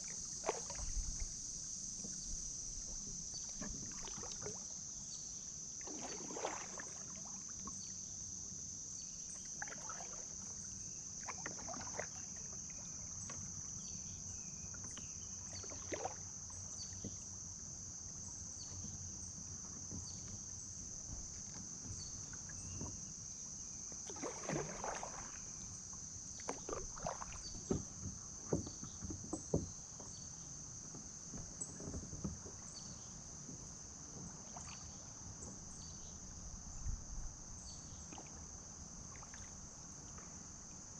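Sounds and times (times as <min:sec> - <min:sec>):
kayak paddle splashing water: 0:00.0 - 0:08.0, 0:09.4 - 0:17.3, 0:23.9 - 0:37.0, 0:37.9 - 0:40.9.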